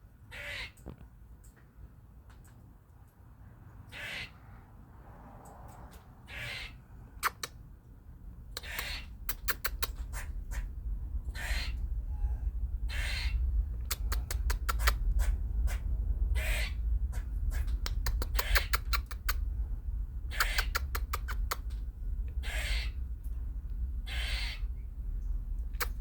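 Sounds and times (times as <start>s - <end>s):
squirrel hoarse squawks: 0.3s - 0.8s, 3.9s - 4.4s, 6.3s - 7.6s, 8.6s - 10.7s, 11.3s - 19.4s, 20.3s - 21.8s, 22.4s - 23.0s, 24.0s - 24.7s, 25.8s - 26.0s
squirrel clicking chatter: 6.4s - 7.6s, 8.5s - 10.6s, 12.9s - 15.8s, 16.4s - 19.5s, 20.3s - 21.8s, 22.4s - 23.0s, 24.1s - 24.6s, 25.8s - 26.0s.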